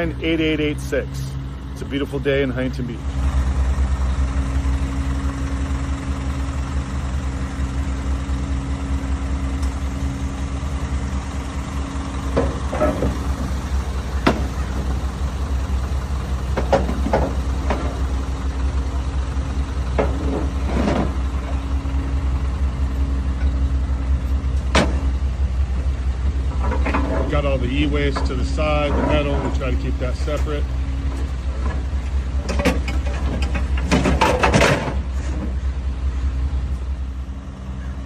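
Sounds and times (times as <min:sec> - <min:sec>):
vehicle engine idling: 0:00.0 - 0:38.0.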